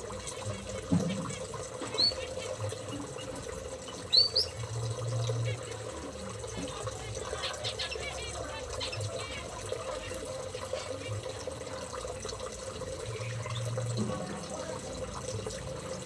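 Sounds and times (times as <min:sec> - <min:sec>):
small birds chirping: 0:00.4 - 0:04.8, 0:06.8 - 0:11.2.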